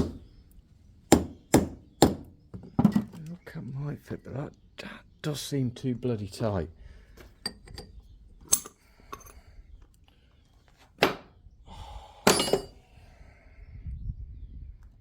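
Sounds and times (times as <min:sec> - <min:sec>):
metal parts clinking: 0:08.5 - 0:09.4, 0:12.3 - 0:12.8
sharp metallic knocks ringing: 0:12.3 - 0:12.8.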